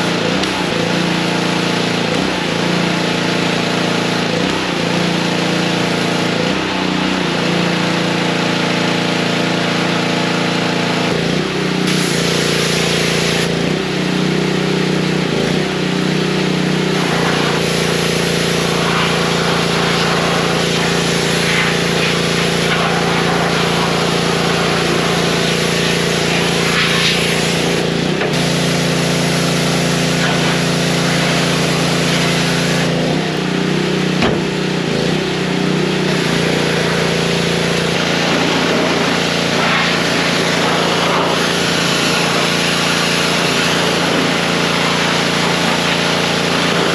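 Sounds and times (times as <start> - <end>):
engine running: 0.0 - 46.9
hiss: 17.0 - 32.9, 37.9 - 46.9.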